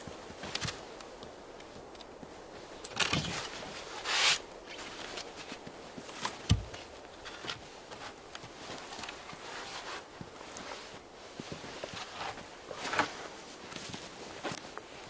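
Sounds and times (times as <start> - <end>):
rustles and small knocks: 0.0 - 15.0
scrape: 3.3 - 4.4.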